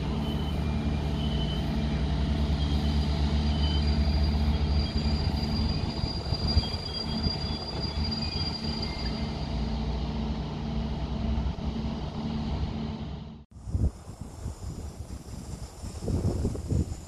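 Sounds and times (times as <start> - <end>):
high wheel squeal: 0.0 - 9.8
locomotive low hum: 0.0 - 17.0.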